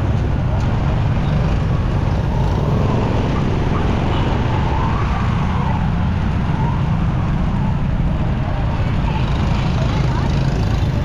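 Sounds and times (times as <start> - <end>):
motorcycle engine rumble: 0.0 - 11.0
faint wailing siren: 1.6 - 8.0.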